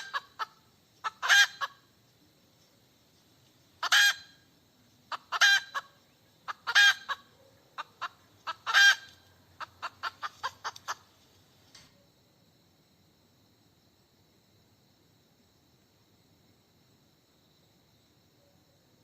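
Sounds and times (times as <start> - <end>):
hen cackling: 0.0 - 2.0, 3.8 - 4.5, 5.1 - 11.1.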